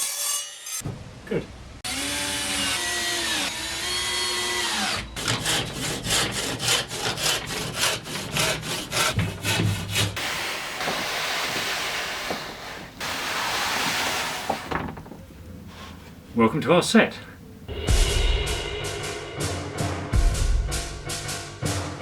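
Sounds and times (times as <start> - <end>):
hand saw cutting timber: 1.9 - 14.7
steady hiss: 10.2 - 17.8.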